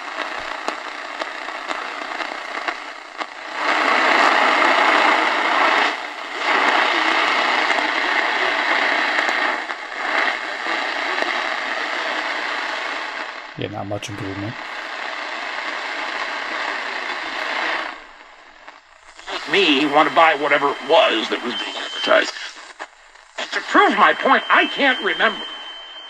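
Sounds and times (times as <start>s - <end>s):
radio static and hiss: 0.0s - 26.0s
weak distant radio station: 13.6s - 14.8s, 17.1s - 26.0s.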